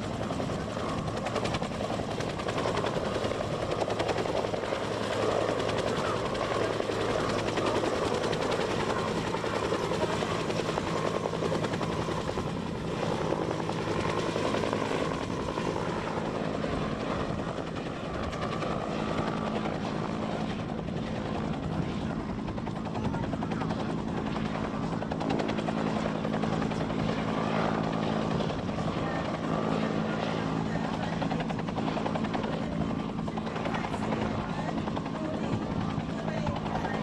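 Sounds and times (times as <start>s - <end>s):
helicopter rotor chop: 0.0s - 37.0s.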